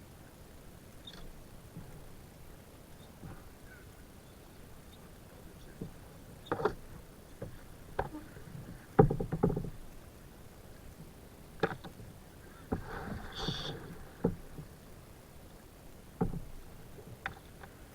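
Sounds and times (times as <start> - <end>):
knocks and rattles on kayak hull: 3.2 - 3.5, 5.6 - 10.0, 11.0 - 14.9, 16.0 - 17.8.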